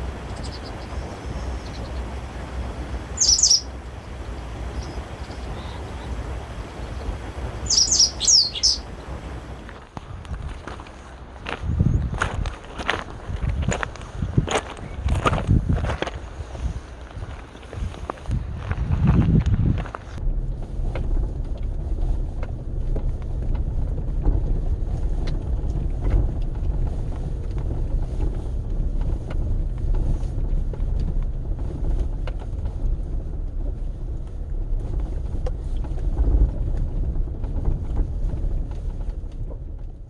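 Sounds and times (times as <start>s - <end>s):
faint ticks: 0.0s - 9.8s
wind buffeting microphone: 0.0s - 40.0s.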